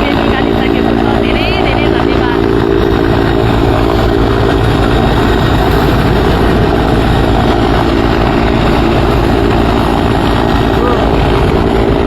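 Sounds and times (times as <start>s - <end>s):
helicopter engine drone: 0.0s - 12.0s
helicopter rotor chop: 0.0s - 12.0s.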